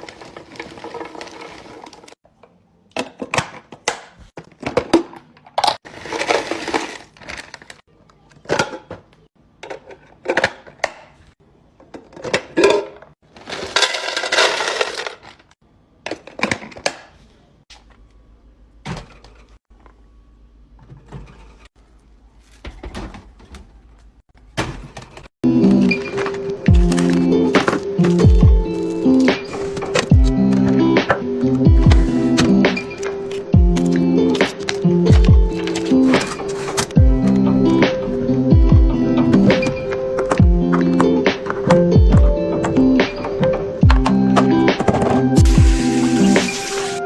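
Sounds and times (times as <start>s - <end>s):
food packaging rustling: 5.8s - 7.8s
packaging clattering and knocking: 11.9s - 15.5s.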